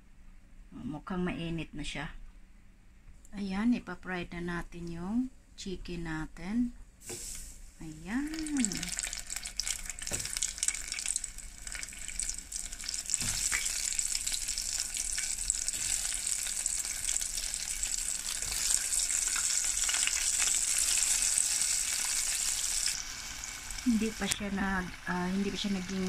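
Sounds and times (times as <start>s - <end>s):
deep-frying sizzle: 7.0s - 26.0s.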